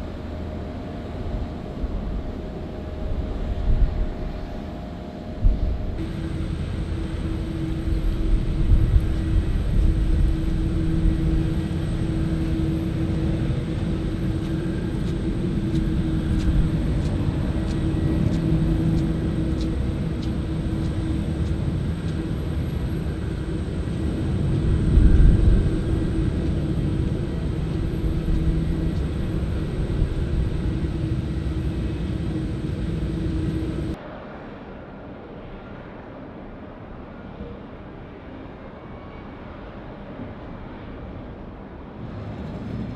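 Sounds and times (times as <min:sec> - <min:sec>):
jet engines rumbling: 0:05.4 - 0:34.0, 0:41.8 - 0:42.9.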